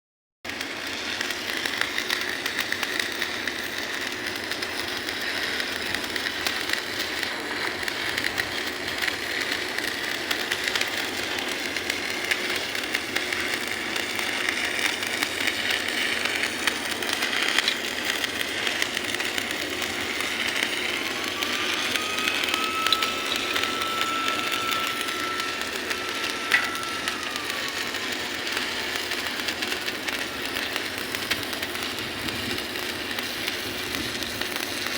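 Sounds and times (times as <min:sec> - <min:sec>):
industrial machinery noise: 0:00.5 - 0:34.9
long rising and falling tone: 0:20.2 - 0:28.6.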